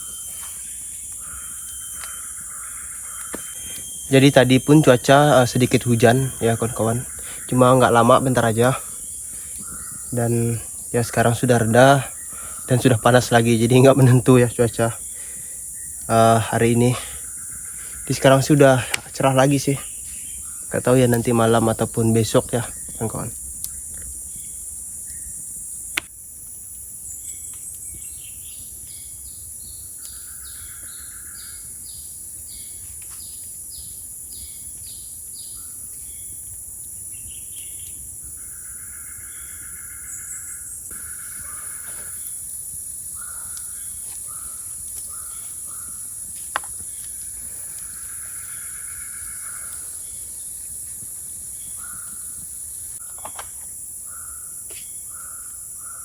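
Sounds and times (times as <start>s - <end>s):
birds whistling: 0.0s - 25.4s, 37.1s - 53.4s
high-pitched insect drone: 0.0s - 27.4s, 29.6s - 56.0s.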